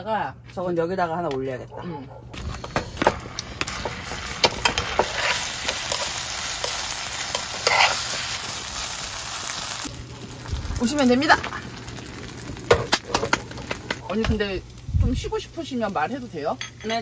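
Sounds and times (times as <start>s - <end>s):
rice sizzling in a pan: 2.4s - 16.6s
metal spatulas scraping a pan: 3.6s - 8.4s.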